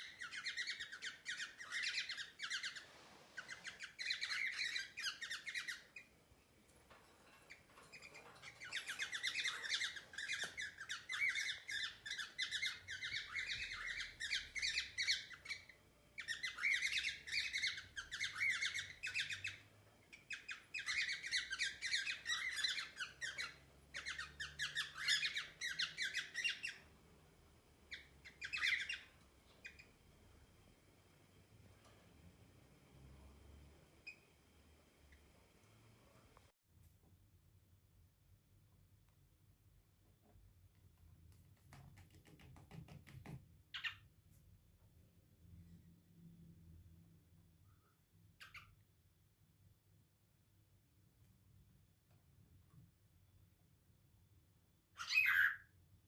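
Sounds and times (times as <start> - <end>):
cockatiel calling: 0.0 - 2.8, 3.4 - 6.1, 8.5 - 26.8, 27.9 - 29.9, 43.7 - 44.0, 48.4 - 48.8, 55.0 - 55.7.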